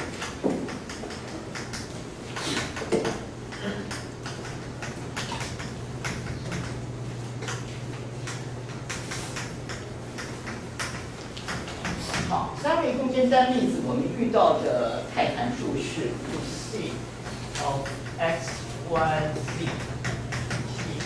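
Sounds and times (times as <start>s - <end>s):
chalk tapping and scratching on board: 17.2s - 21.0s.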